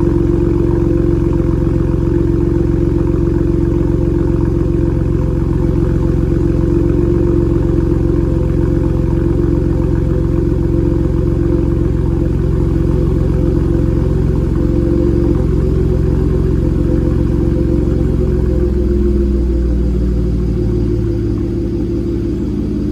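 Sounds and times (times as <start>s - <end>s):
car engine idling: 0.0s - 22.9s.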